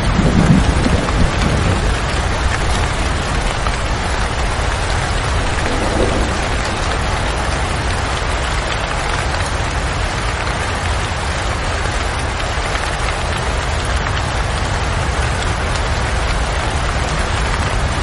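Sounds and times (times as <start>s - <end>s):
low rumble: 0.0s - 8.2s
rain pattering: 0.0s - 18.0s.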